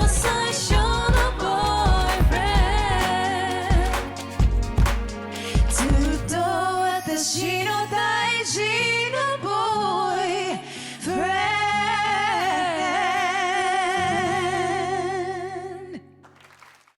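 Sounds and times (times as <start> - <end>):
woman singing: 0.0 - 4.6, 5.4 - 16.2
instrumental backing: 0.0 - 6.9.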